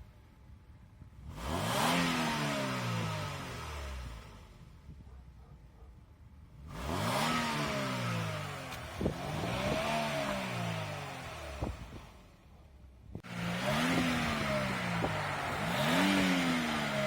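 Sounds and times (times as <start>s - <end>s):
car engine revving: 1.2s - 4.6s, 6.6s - 12.3s, 13.2s - 17.0s.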